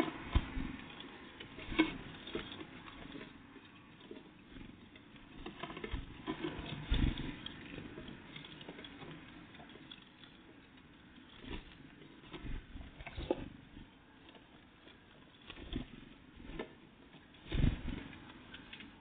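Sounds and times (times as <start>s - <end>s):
thumps: 0.0s - 3.4s
birds pecking at a feeder: 0.0s - 19.0s.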